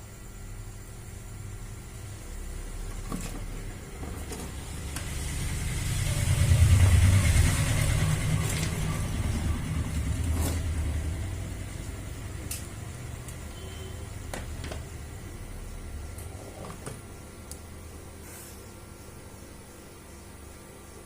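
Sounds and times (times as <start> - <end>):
vehicle engine rumble: 3.0 - 13.2.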